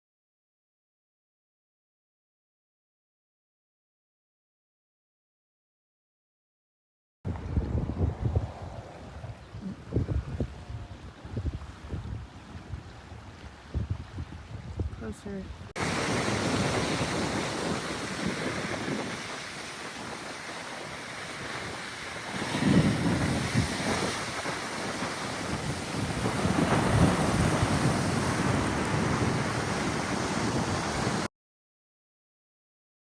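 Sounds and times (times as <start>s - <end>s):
wind buffeting microphone: 7.3s - 31.3s
breaking surf: 15.8s - 31.3s.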